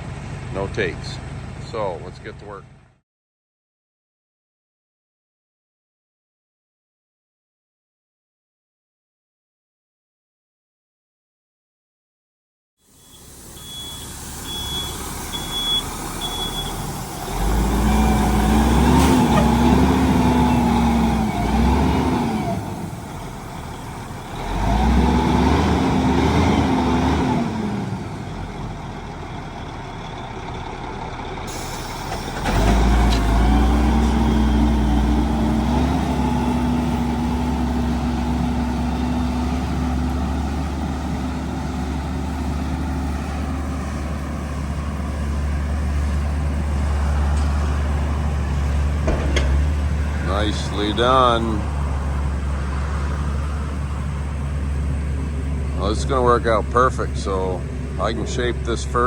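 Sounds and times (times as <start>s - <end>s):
diesel truck engine revving: 0.0s - 2.9s, 12.9s - 59.0s
reversing beeper: 12.9s - 21.6s, 22.4s - 25.2s.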